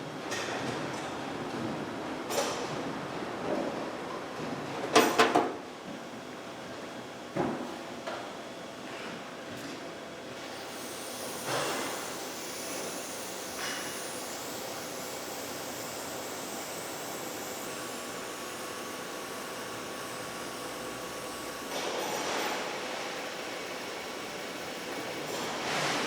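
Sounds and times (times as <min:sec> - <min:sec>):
laser cutter hissing: 0:10.5 - 0:26.0.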